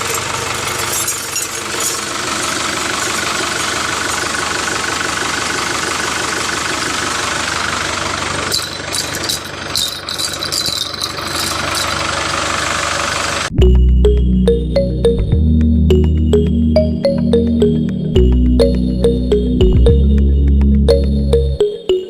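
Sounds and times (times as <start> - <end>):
sharp clicks and rattles: 0.0 - 5.8, 8.0 - 12.7
small motor rattling: 0.0 - 13.5
music: 13.6 - 22.0.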